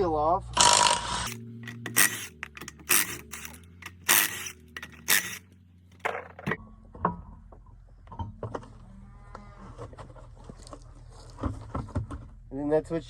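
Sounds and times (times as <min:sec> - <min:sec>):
metal clicks and clinks: 0:01.6 - 0:05.5.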